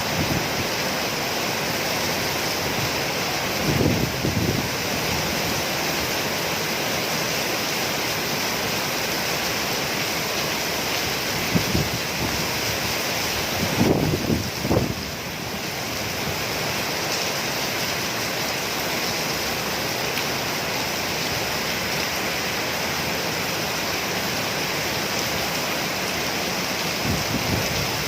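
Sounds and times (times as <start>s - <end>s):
heavy rain hissing: 0.0s - 28.0s.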